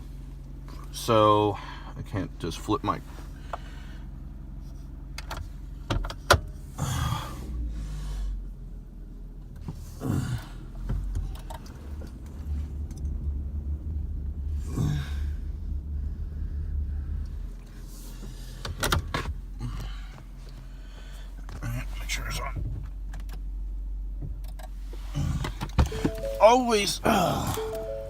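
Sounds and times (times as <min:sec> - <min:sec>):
truck engine idling: 0:25.0 - 0:28.0.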